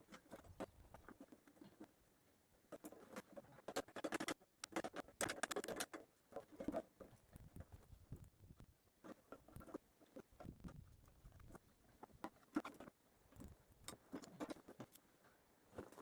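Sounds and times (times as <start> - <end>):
hand tools clicking and knocking: 3.2 - 6.8.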